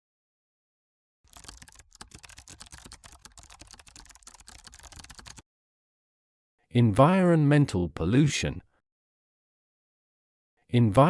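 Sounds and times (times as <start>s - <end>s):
keyboard typing clicks: 1.3s - 5.4s.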